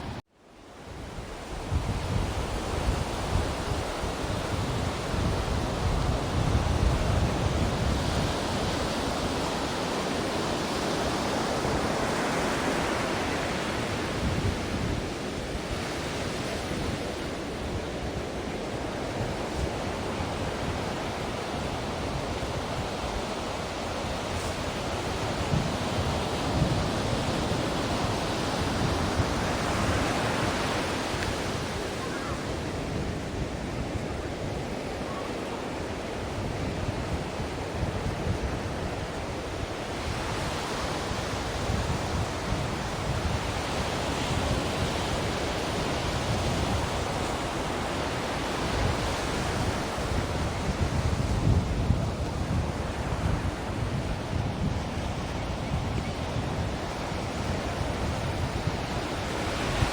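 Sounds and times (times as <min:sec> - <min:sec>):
ocean waves breaking: 0:01.1 - 0:59.9.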